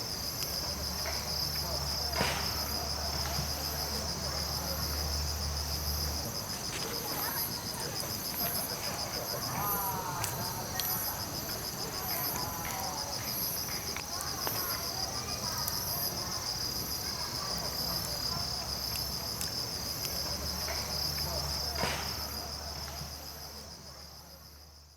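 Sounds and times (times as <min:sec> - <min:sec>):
insects chirring: 0:00.0 - 0:24.9
campfire pops and crackles: 0:12.0 - 0:23.0.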